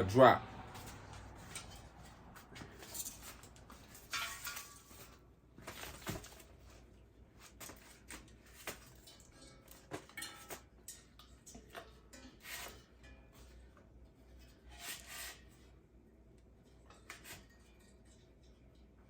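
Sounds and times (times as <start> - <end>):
metal parts clanking and rattling: 0.7 - 6.8, 7.4 - 15.6.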